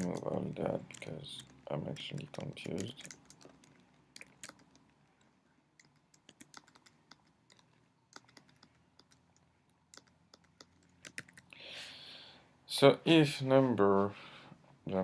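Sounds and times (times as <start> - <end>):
faint keyboard keystrokes: 0.0 - 11.5.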